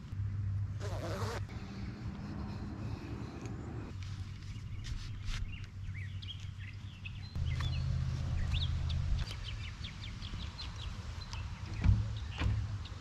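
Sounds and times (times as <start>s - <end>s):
birds chirping: 0.3s - 13.0s
low rumble: 7.4s - 9.7s.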